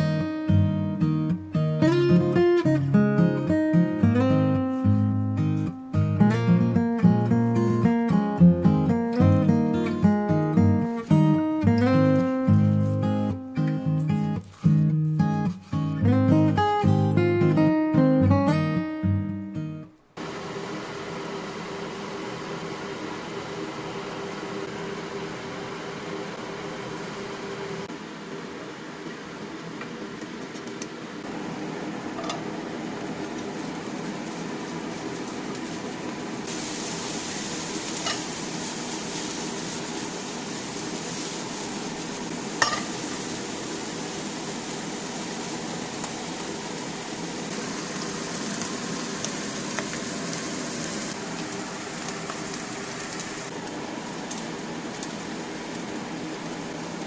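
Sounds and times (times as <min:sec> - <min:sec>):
fan-like hum: 0:20.0 - 0:57.0
food sizzling in a frying pan: 0:31.3 - 0:57.0.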